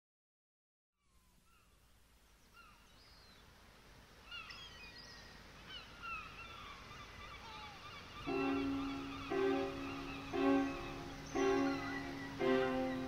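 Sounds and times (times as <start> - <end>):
birds chirping: 4.2 - 13.0
low steady rushing noise: 7.9 - 13.0.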